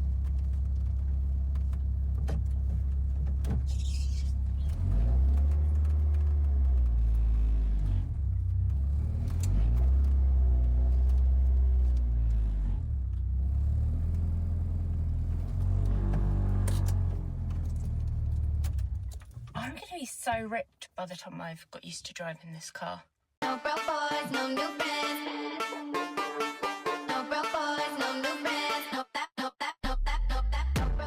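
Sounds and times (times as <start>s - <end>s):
car engine revving: 4.5s - 19.1s.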